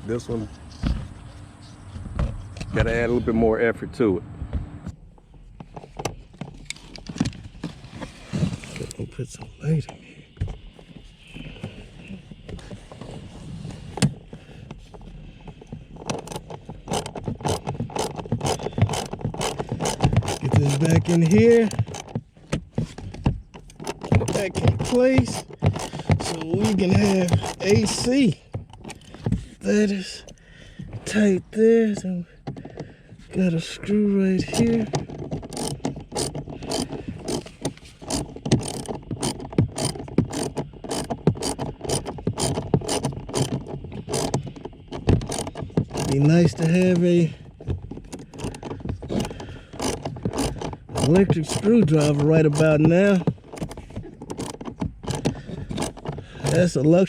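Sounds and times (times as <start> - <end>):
hard plastic parts scraping and knocking: 0.1 - 3.4, 4.4 - 57.0
hand ratchet clicking: 15.9 - 22.2, 22.9 - 29.1, 34.4 - 56.8.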